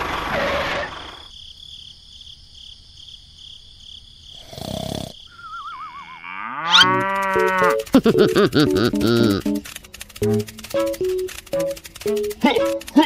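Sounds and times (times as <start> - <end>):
wavering falling whistle: 5.3 - 7.0
cow mooing: 5.4 - 7.8.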